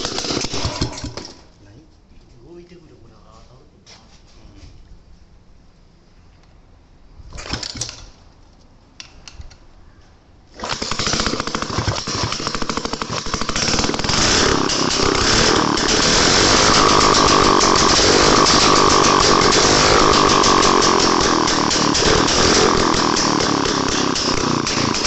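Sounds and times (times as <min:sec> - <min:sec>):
two-stroke engine running: 0:00.0 - 0:01.4, 0:10.6 - 0:25.0.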